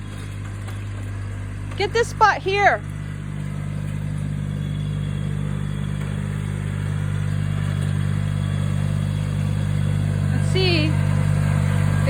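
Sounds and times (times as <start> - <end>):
lawn tractor engine running: 0.0 - 12.0.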